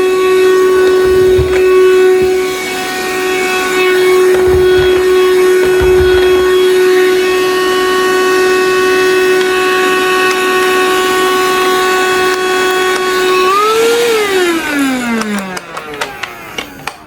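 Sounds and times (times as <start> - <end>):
handheld vacuum cleaner whine: 0.0 - 16.9.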